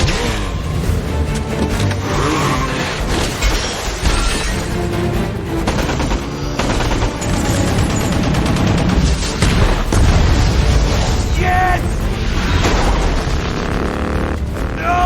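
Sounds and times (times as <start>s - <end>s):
driving film score: 0.0s - 15.0s
rapid automatic gunfire: 5.6s - 10.0s, 12.7s - 14.8s.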